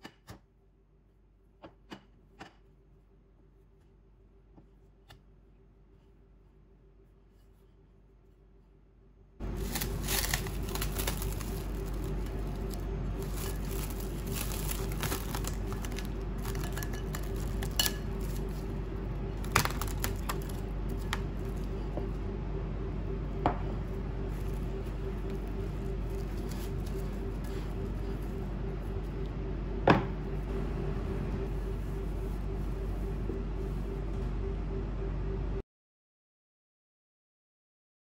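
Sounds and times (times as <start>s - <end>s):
steady hum: 0.1s - 35.6s
cling wrap crinkling: 9.4s - 21.9s, 23.8s - 29.2s.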